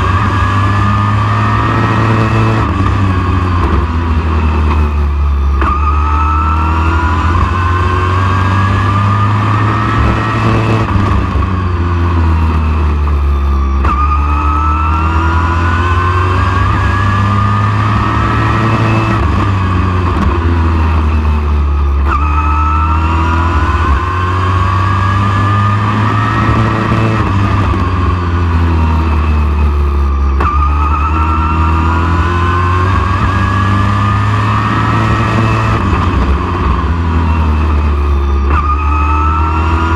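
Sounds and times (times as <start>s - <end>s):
truck engine at full throttle: 0.0s - 39.9s.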